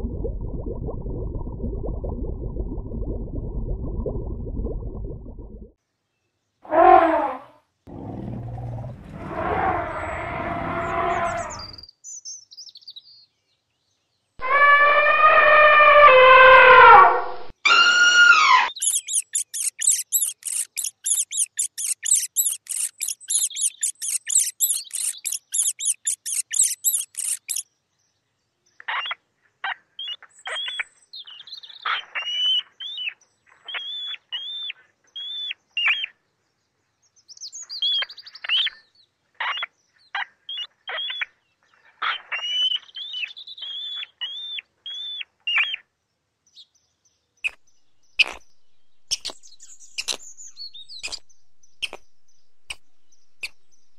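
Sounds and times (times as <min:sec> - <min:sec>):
drawn-out falling animal call: 0:07.9 - 0:11.8, 0:14.4 - 0:17.1, 0:17.7 - 0:27.6
mouse squeaks: 0:17.7 - 0:27.6, 0:48.2 - 0:53.9
short high chirps: 0:18.8 - 0:27.6.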